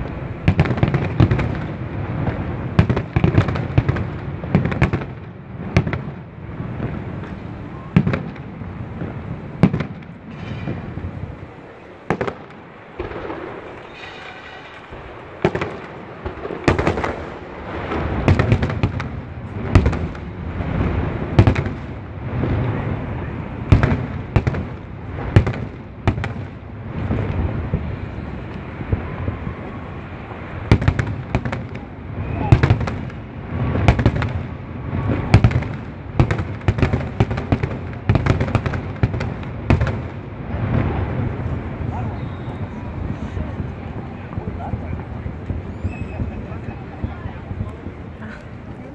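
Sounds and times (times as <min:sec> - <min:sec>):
rumbling firework crackle: 0:00.0 - 0:48.9
firework shells bursting: 0:08.1 - 0:22.0.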